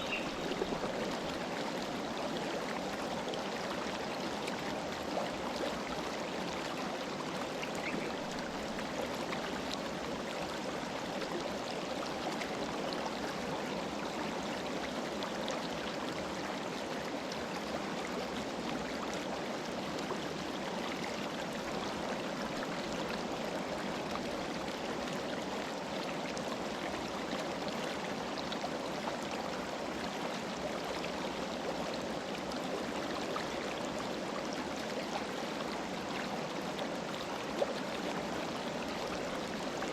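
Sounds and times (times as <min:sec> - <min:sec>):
river water rushing: 0:00.0 - 0:11.4.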